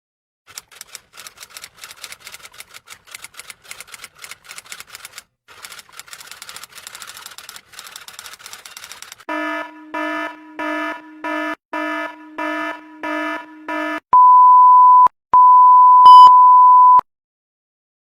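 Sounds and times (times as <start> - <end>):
rapid sharp clicks: 0.5 - 9.3.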